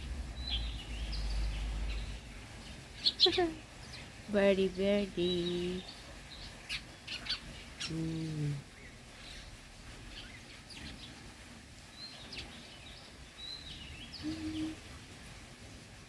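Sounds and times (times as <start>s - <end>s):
small birds chirping: 0.0s - 15.5s
short low hummed voice: 7.9s - 8.7s, 14.2s - 14.8s.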